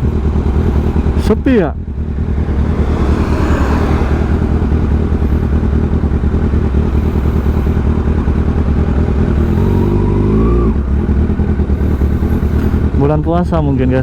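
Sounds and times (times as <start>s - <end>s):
motorcycle engine idling: 0.0s - 14.0s
engine note rising in pitch: 2.0s - 12.2s.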